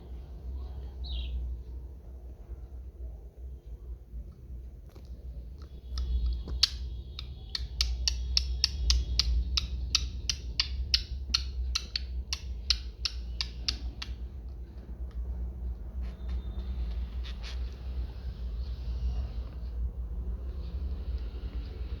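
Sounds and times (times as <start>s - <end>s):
soft bird chirping: 0.2s - 1.8s, 5.0s - 14.4s, 15.7s - 22.0s
bird beak tapping hard surface: 5.9s - 14.5s.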